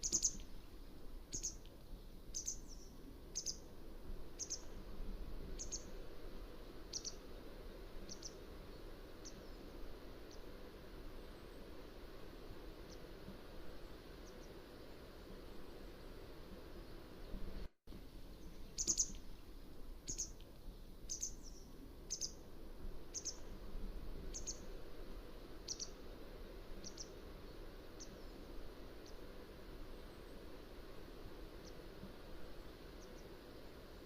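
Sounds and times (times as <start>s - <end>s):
wagtail calling: 0.0s - 0.5s, 1.3s - 1.6s, 2.3s - 3.6s, 4.4s - 4.7s, 5.6s - 6.0s, 6.9s - 7.2s, 18.7s - 19.2s, 21.1s - 22.4s, 23.1s - 23.4s, 25.6s - 26.0s, 26.8s - 27.2s
background hiss: 0.0s - 34.0s.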